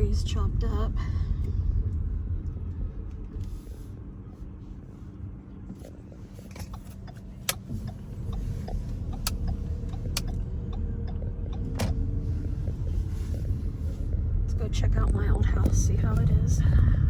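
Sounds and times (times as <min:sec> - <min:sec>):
car engine and road rumble: 0:00.0 - 0:17.0
sharp clicks: 0:06.6 - 0:12.0.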